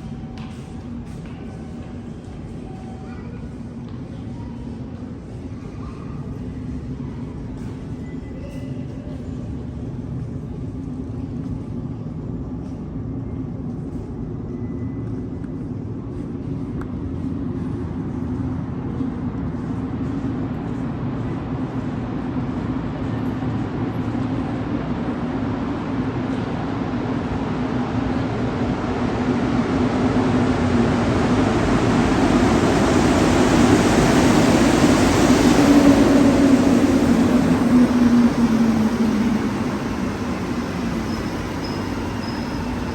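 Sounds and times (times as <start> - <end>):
subway train running: 0.0 - 42.9
rushing noise: 29.5 - 42.9.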